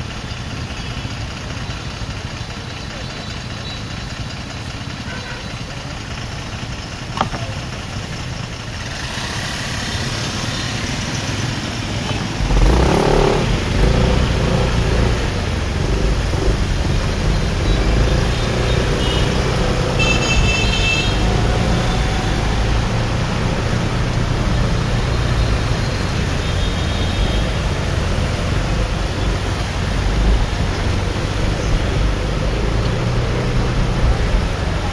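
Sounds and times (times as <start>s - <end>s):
motorbike engine and road noise: 0.0s - 34.9s.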